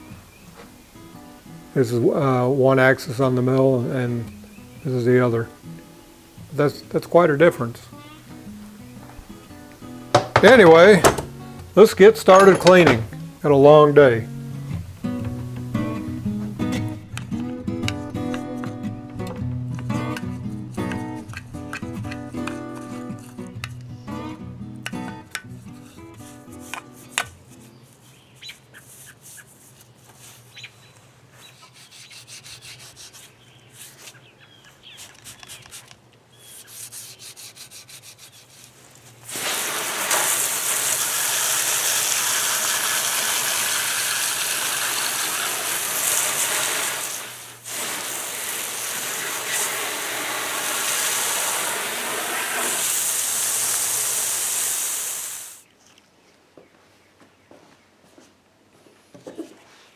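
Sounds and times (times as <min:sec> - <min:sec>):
loud steady hiss: 0:00.0 - 0:17.0, 0:39.2 - 0:55.6
scraping on rusty metal: 0:10.1 - 0:11.5.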